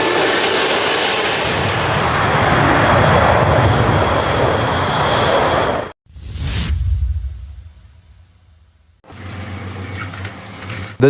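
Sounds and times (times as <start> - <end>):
fighter jet engine roar: 0.0 - 9.0.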